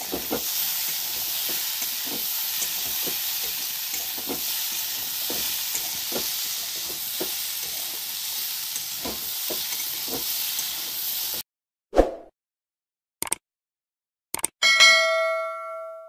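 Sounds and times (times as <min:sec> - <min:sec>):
spatula scraping pan: 0:00.0 - 0:11.0
frying hiss: 0:00.0 - 0:11.4.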